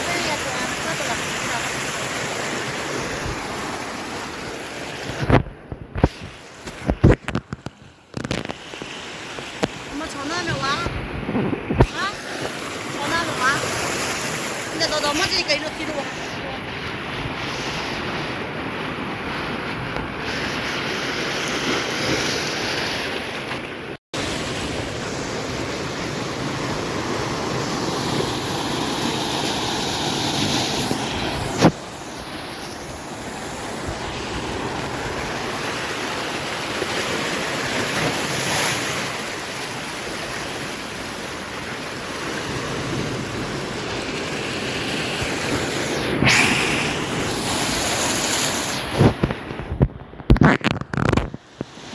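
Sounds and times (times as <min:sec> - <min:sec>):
waves breaking on shore: 0:00.0 - 0:51.9.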